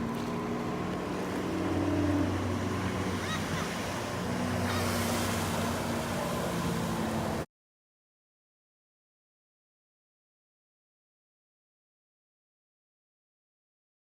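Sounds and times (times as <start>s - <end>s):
motorboat engine running: 0.0s - 7.4s
water noise: 0.0s - 7.5s.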